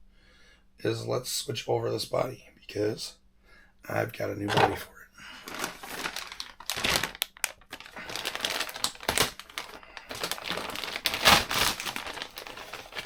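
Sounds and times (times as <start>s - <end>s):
plastic crinkling: 5.4s - 13.0s.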